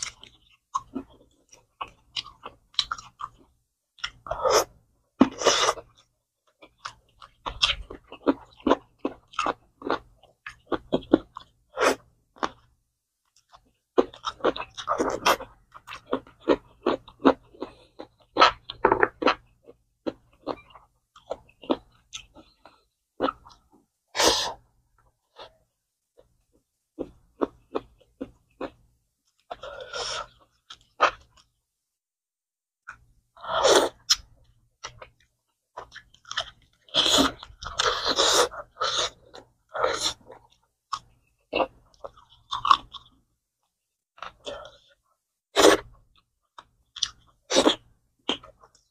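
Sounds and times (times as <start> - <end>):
wet chewing and smacking: 0.0 - 11.6, 13.3 - 23.7, 33.9 - 43.2, 45.8 - 48.9.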